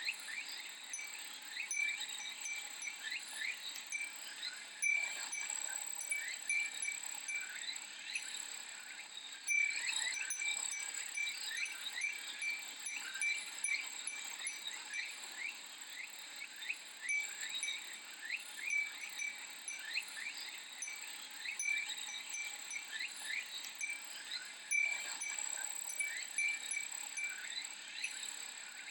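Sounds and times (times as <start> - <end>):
wind chime tinkling: 0.9 - 8.4, 9.5 - 15.5, 17.0 - 28.3
cicadas buzzing: 17.0 - 28.2.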